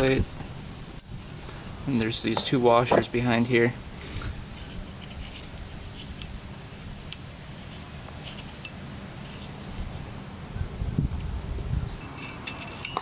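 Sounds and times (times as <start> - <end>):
metallic clicks of small parts: 12.0 - 13.0.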